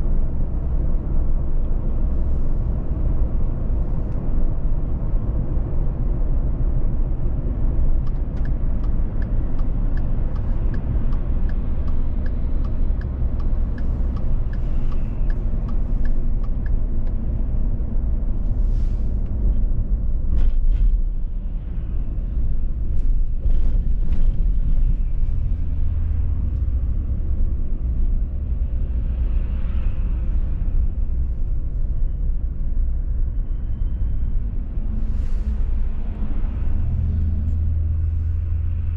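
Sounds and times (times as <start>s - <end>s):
car tyres and engine rumble: 0.0s - 38.9s
turn signal ticking: 8.0s - 17.2s.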